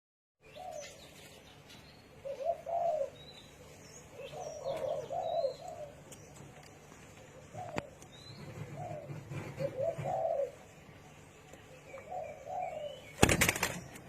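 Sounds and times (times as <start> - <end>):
small birds chirping: 0.4 - 14.0
dove cooing: 0.5 - 1.3, 2.2 - 6.1, 7.2 - 10.8, 11.9 - 13.8.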